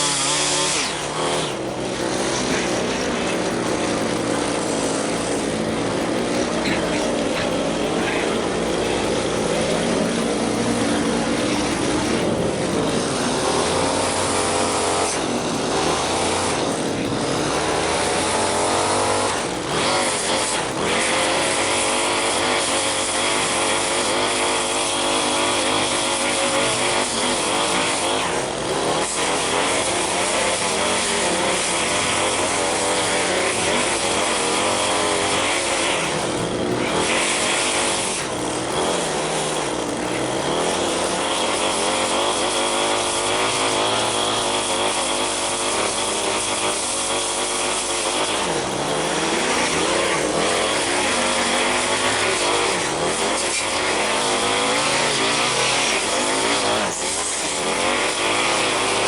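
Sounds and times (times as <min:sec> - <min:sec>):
higher engine note: 0:00.0 - 0:59.0
small gasoline engines running: 0:00.0 - 0:59.0.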